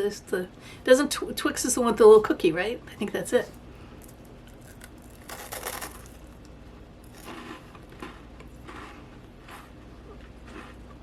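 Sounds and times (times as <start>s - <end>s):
candy bar crunching when chewed: 4.0s - 11.0s.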